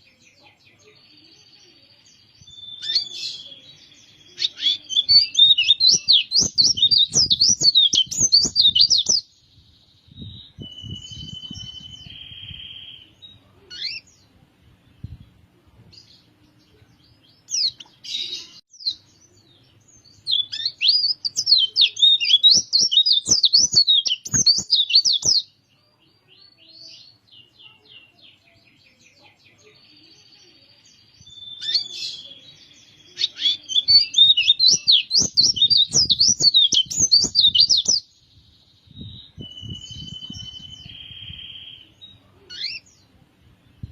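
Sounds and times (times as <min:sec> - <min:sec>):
bird twittering song: 0:00.0 - 0:15.4, 0:16.0 - 0:43.9
bird chirps and whistled notes: 0:04.4 - 0:09.2, 0:10.2 - 0:13.0, 0:20.3 - 0:25.4, 0:33.2 - 0:38.1, 0:39.0 - 0:41.8.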